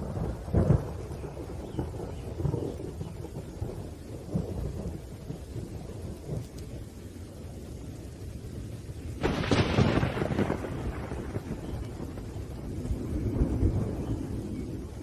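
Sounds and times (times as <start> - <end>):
low rumbling thunder: 0.0 - 15.0
steady rain: 0.0 - 15.0
loud thunder crack: 9.2 - 15.0.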